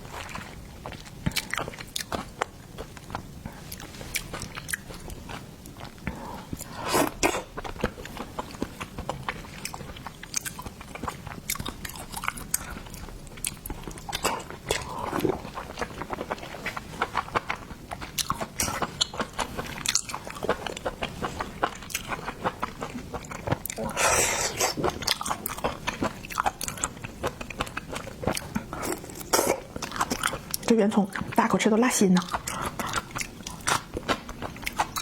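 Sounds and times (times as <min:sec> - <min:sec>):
person chewing food: 0:00.0 - 0:31.4, 0:32.2 - 0:35.0.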